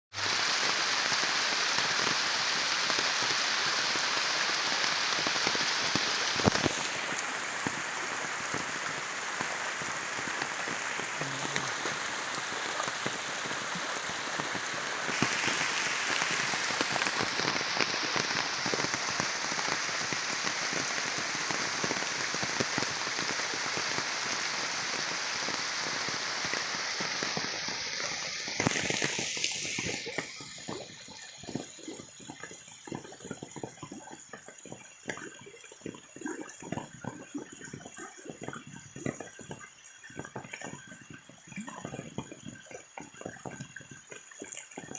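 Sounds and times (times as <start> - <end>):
heavy rain: 0.1 - 35.8.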